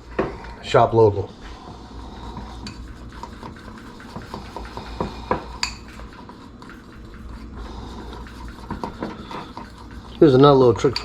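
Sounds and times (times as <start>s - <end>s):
metal utensil scraping bowl: 2.1s - 11.0s.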